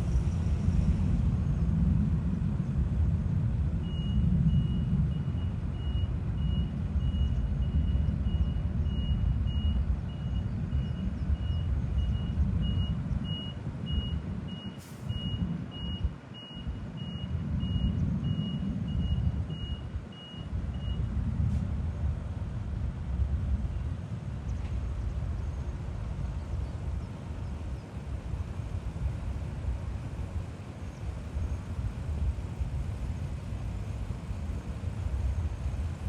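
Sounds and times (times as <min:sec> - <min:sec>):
steady low rumble: 0:00.0 - 0:36.0
reversing alarm beeping: 0:03.8 - 0:21.1.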